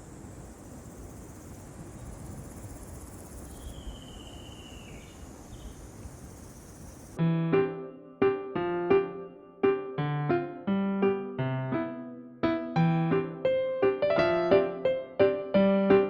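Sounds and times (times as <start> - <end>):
insects chirring: 0.0 - 7.2
low rumble of wind: 0.0 - 7.2
drawn-out whistled call: 3.5 - 7.1
piano music: 7.2 - 16.0.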